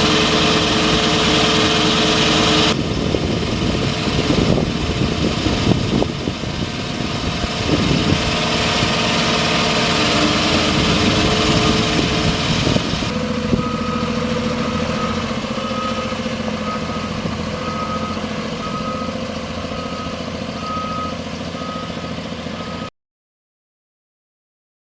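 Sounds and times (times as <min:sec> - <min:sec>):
truck engine running: 0:00.0 - 0:22.9
backup alarm beeping: 0:13.6 - 0:22.9.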